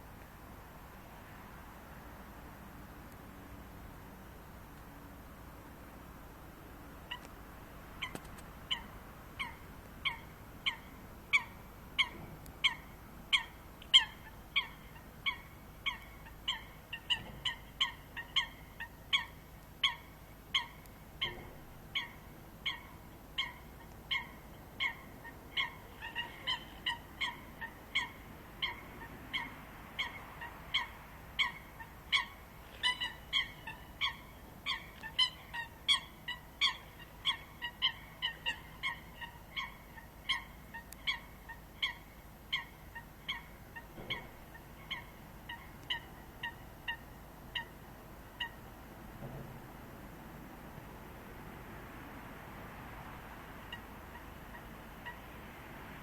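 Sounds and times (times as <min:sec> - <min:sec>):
birds giving sharp calls: 0:08.0 - 0:48.7.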